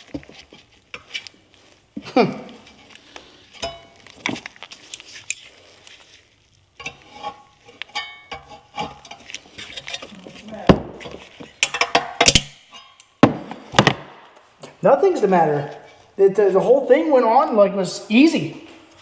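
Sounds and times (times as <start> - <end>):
metal tools clinking: 2.6 - 5.5, 6.8 - 13.2
metallic ring: 3.6 - 4.1, 6.8 - 9.3, 11.6 - 13.1.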